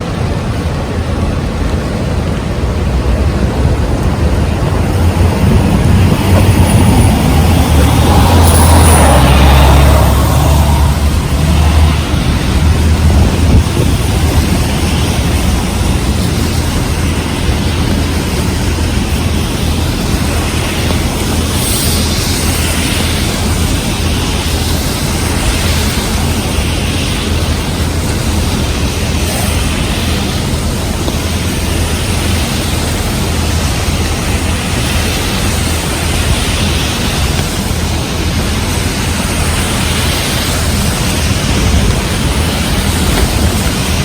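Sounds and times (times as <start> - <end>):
heavy rain falling: 0.0 - 44.0
low rumble: 0.0 - 44.0
wind gusts on microphone: 0.0 - 44.0.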